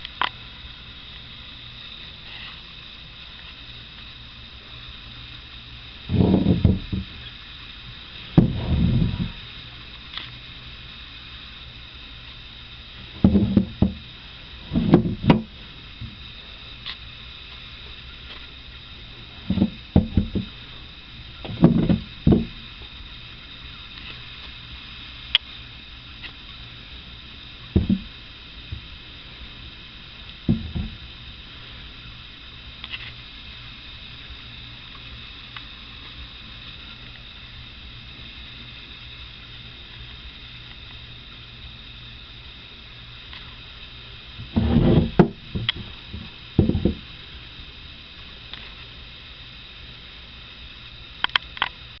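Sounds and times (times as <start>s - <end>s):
steady background hum: 0.0s - 52.0s
steady low hiss: 0.0s - 52.0s
knocking and rubbing handling noise: 6.1s - 7.1s, 8.4s - 9.4s, 13.2s - 14.0s, 14.6s - 16.2s, 19.4s - 20.5s, 21.5s - 22.6s, 27.8s - 28.1s, 30.5s - 31.0s, 44.4s - 47.0s
sharp click: 51.2s - 51.8s.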